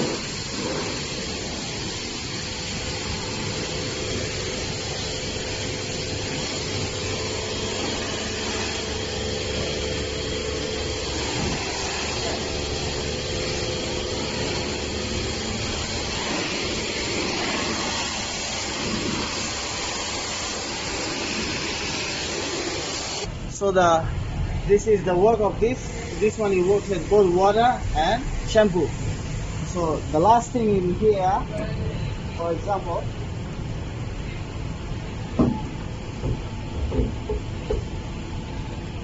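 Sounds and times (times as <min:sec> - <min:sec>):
high-pressure water spraying: 0:00.0 - 0:23.3, 0:24.9 - 0:31.4
machine hum: 0:00.0 - 0:39.0.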